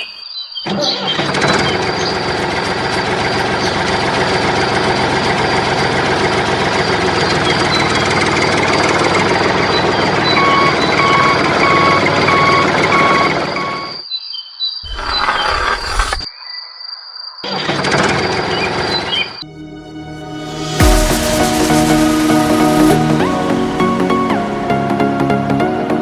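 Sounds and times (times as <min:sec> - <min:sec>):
engine running: 0:01.2 - 0:13.5
reversing beeps: 0:10.2 - 0:14.0.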